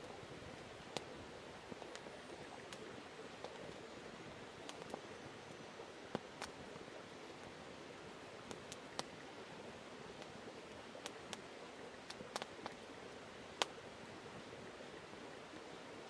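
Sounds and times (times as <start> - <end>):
campfire crackling pops: 0.0 - 7.6, 8.3 - 9.3, 10.1 - 12.8, 13.5 - 13.8
faint steady hiss: 0.0 - 16.0.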